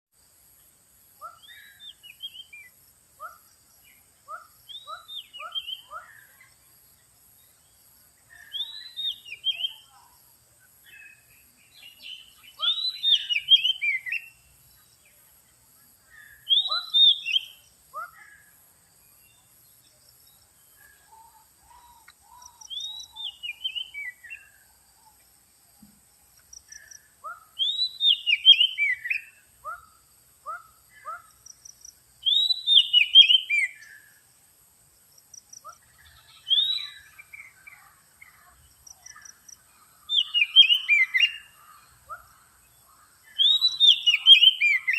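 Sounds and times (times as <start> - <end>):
bird whistled song: 1.2 - 2.8, 3.9 - 6.6, 8.3 - 10.0, 10.9 - 14.5, 16.1 - 18.4, 20.8 - 24.6, 26.7 - 29.9, 32.2 - 34.1, 35.6 - 38.4, 40.1 - 42.2, 43.3 - 44.9.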